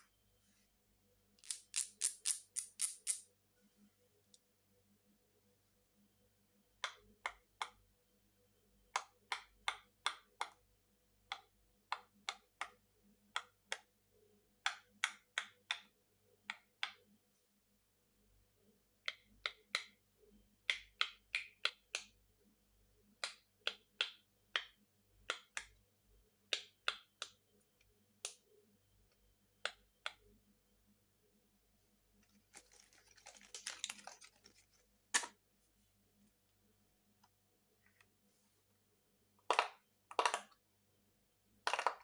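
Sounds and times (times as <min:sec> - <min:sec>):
toy rustling: 0:32.2 - 0:35.3.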